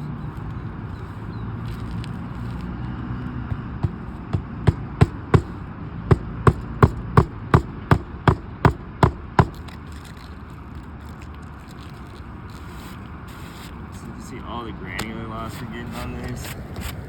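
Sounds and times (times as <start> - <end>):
hammer striking shingle roof: 3.5 - 9.6.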